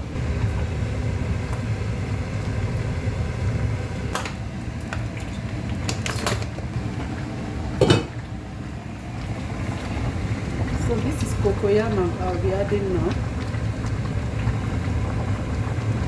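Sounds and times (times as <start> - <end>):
cookware knocks and clinks: 7.8 - 8.1.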